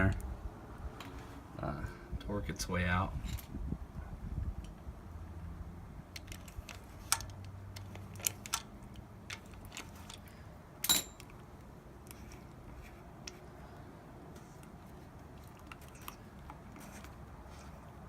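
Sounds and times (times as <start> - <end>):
wind rumble on microphone: 1.8 - 5.2
metal clank: 10.8 - 11.3.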